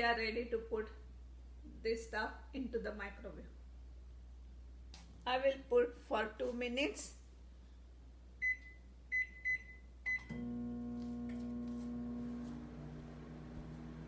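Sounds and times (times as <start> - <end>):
microwave humming: 10.1 - 14.0.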